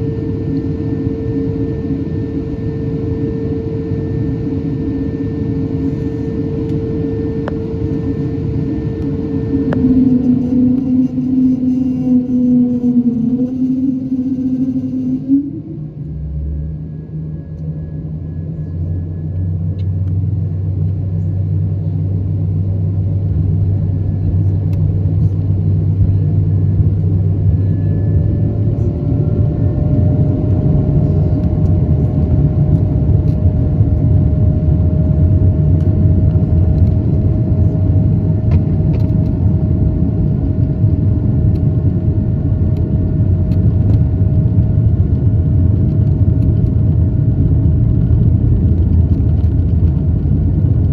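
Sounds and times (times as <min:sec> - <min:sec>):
jet engines spooling up: 0:00.0 - 0:20.3.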